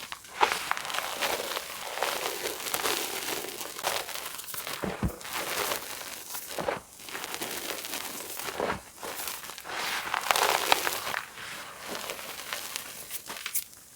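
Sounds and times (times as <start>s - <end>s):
chalk crunching and crackling: 0.0s - 13.9s
dull thump: 4.8s - 7.0s.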